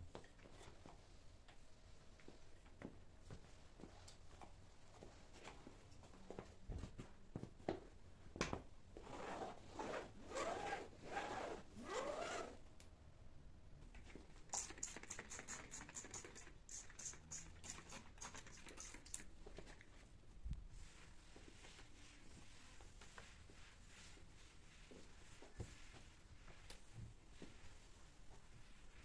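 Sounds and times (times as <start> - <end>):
squeaky rubbing strokes: 9.2 - 12.6.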